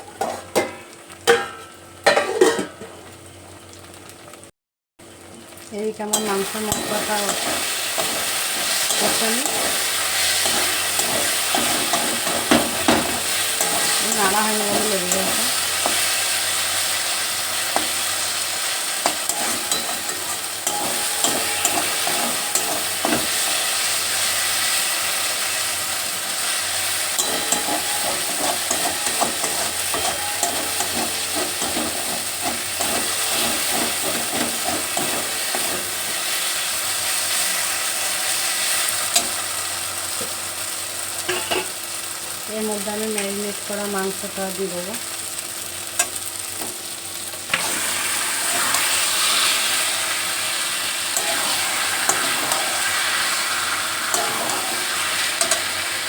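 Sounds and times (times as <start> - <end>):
paste sizzling in a pan: 5.3 - 56.0
spatula scraping a pan: 6.7 - 16.4, 19.0 - 23.9, 27.2 - 36.4, 51.2 - 55.7.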